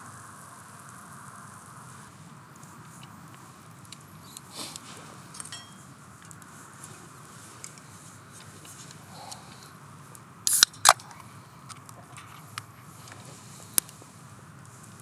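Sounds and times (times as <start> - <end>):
metal cooking utensils clinking: 5.4 - 5.9
small handling clicks: 10.5 - 14.0.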